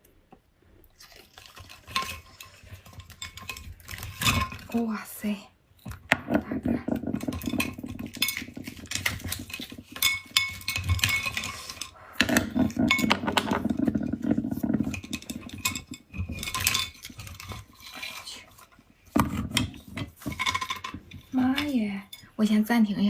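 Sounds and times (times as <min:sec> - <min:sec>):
cutlery and dishes clinking: 0:01.6 - 0:04.7, 0:06.3 - 0:22.4.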